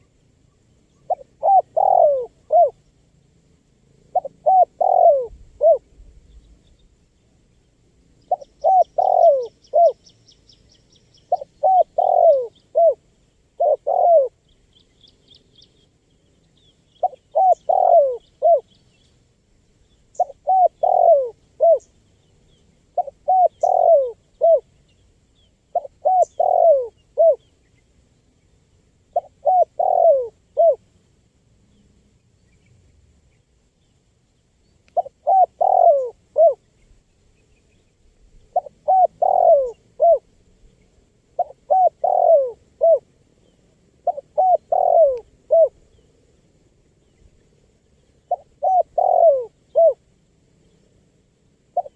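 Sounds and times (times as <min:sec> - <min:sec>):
dove cooing: 0:01.0 - 0:02.8, 0:04.1 - 0:06.0, 0:08.3 - 0:10.0, 0:11.3 - 0:13.0, 0:13.6 - 0:14.4, 0:17.0 - 0:18.7, 0:20.2 - 0:21.9, 0:22.9 - 0:24.7, 0:25.7 - 0:27.5, 0:29.1 - 0:30.8, 0:35.0 - 0:36.7, 0:38.5 - 0:40.3, 0:41.4 - 0:43.1, 0:44.0 - 0:46.0, 0:48.3 - 0:50.0.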